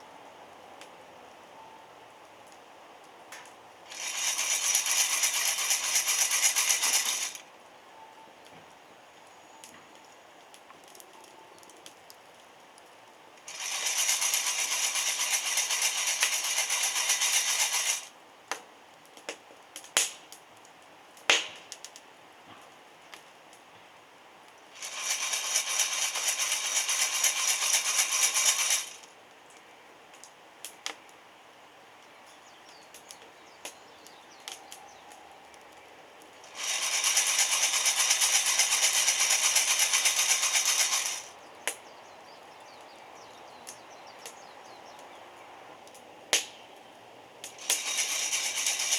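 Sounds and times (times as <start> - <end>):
coffee beans rattling in roaster: 3.9 - 7.4, 13.5 - 18.1, 24.8 - 29.0, 36.5 - 41.3, 47.6 - 48.9
sharp cracks and pops: 9.6 - 22.1, 24.8 - 31.2, 32.3 - 41.9, 45.8 - 46.6.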